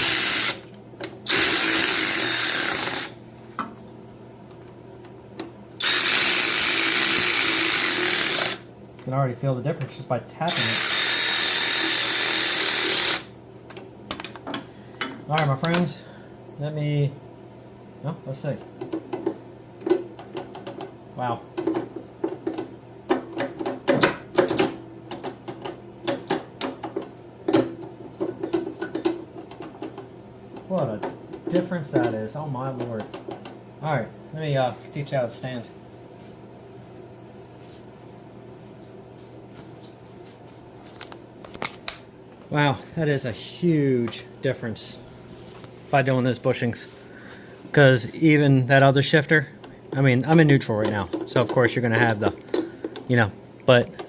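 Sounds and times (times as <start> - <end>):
power drill driving bolts: 0.0 - 0.6, 1.3 - 3.1, 5.8 - 8.6, 10.5 - 13.3.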